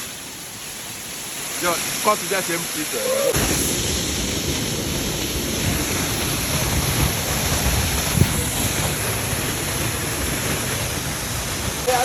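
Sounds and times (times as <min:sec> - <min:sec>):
waterfall rushing: 0:00.0 - 0:12.0
wind buffeting microphone: 0:03.3 - 0:12.0.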